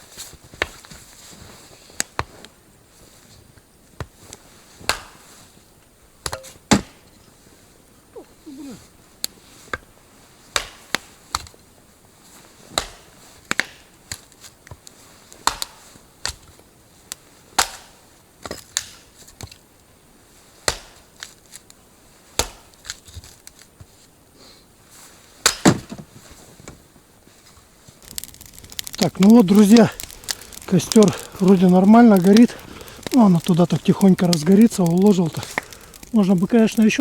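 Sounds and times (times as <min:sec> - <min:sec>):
firewood cracking: 0:12.7 - 0:19.7, 0:22.4 - 0:23.8, 0:25.4 - 0:37.0.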